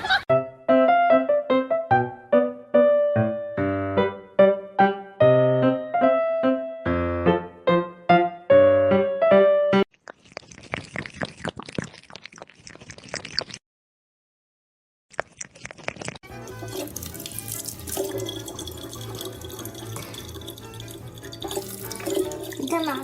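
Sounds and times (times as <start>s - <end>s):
piano phrase: 0.7s - 9.8s
water running from tap: 16.3s - 23.0s.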